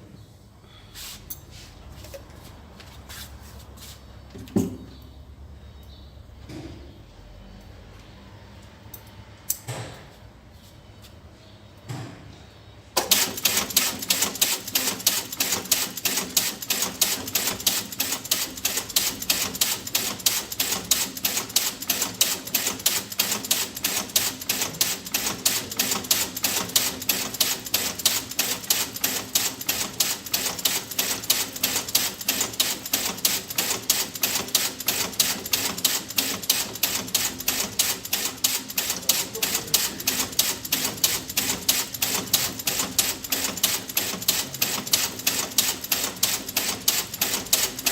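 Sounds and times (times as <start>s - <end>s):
rapid mechanical clicking: 13.0s - 47.9s.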